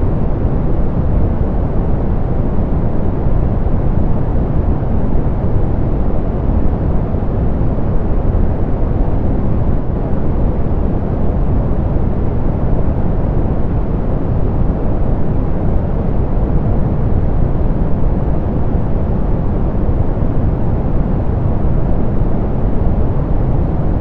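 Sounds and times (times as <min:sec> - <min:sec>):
soft pink noise: 0:00.0 - 0:24.0.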